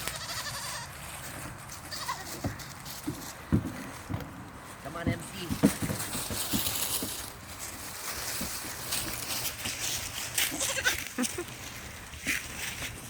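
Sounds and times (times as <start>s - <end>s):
goat bleating: 0.0s - 1.0s, 1.8s - 2.7s, 10.4s - 11.5s.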